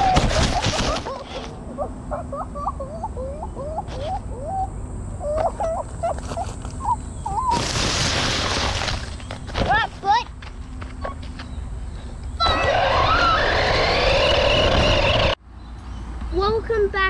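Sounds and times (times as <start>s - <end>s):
birds whistling: 0.1s - 7.7s, 10.9s - 16.1s.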